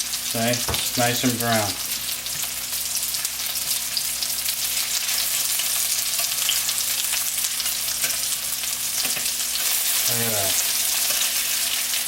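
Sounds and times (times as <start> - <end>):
chicken frying in oil: 0.0 - 12.0.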